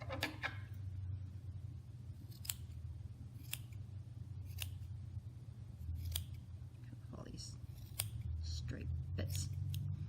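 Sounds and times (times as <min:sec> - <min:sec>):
steady low hum: 0:00.0 - 0:10.0
scissors snipping yarn: 0:02.2 - 0:04.9, 0:05.8 - 0:06.5, 0:07.6 - 0:08.5, 0:09.2 - 0:10.0.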